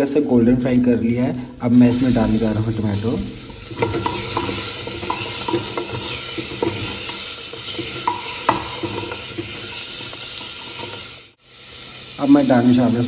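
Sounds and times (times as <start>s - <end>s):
tomatoes sizzling in hot fat: 1.6s - 13.0s
wooden spatula scraping pot: 2.9s - 11.4s.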